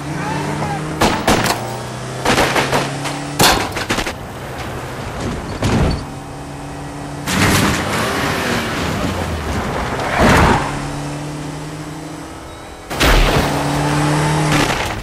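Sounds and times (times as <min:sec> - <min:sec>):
car engine accelerating hard: 0:05.9 - 0:14.9.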